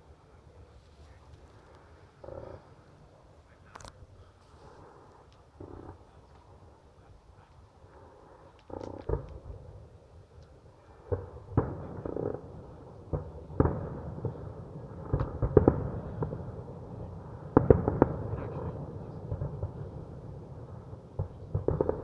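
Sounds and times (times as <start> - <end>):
fireworks exploding: 11.0 - 22.0.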